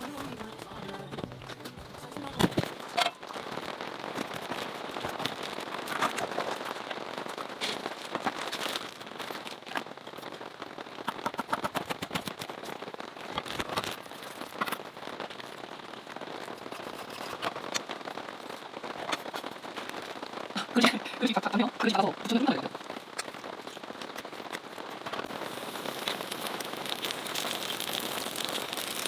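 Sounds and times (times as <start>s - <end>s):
plastic film crackling: 0.0s - 29.0s
rain pattering: 0.0s - 29.0s.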